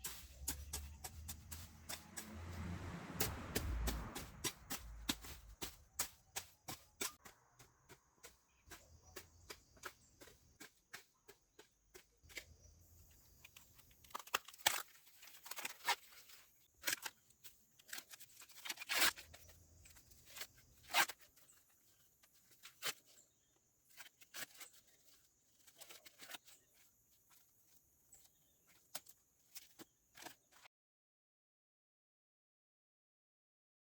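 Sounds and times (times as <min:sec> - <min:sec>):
plants snapping and crackling: 0:13.5 - 0:17.2
plants ripping: 0:17.8 - 0:19.4.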